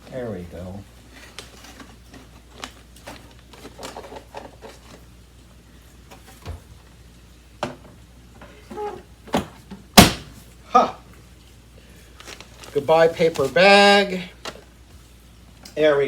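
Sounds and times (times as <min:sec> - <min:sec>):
plastic clicks and rustles: 0:01.2 - 0:05.1.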